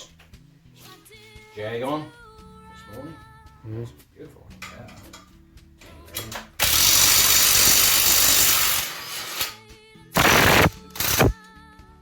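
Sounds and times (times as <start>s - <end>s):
power tool working on metal: 6.6s - 9.6s, 10.2s - 11.3s.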